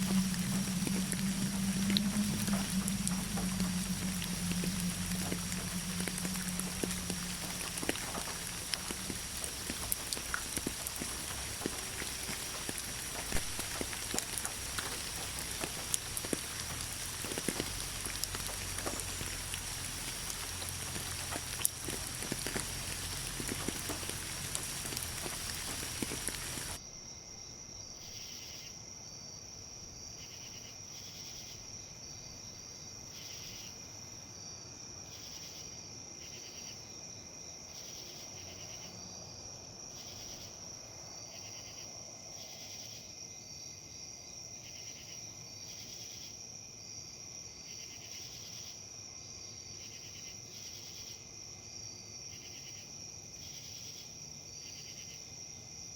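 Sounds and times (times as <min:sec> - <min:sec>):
high insect trill: 0:00.0 - 0:26.8
light rain ticking: 0:00.0 - 0:26.8
wind rustling leaves: 0:00.0 - 0:26.8
crickets chirping: 0:00.0 - 0:55.9.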